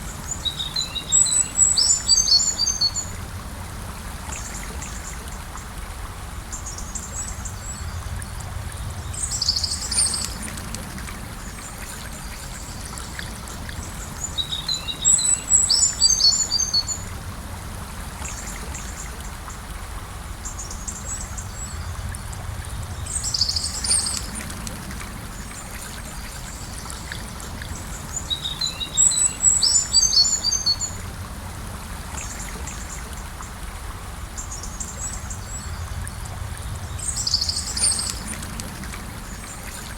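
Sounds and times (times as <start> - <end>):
river water flowing: 0.0 - 39.9
birds singing: 0.1 - 3.2, 8.8 - 10.5, 11.5 - 17.1, 20.4 - 24.5, 25.3 - 31.0, 36.7 - 38.5.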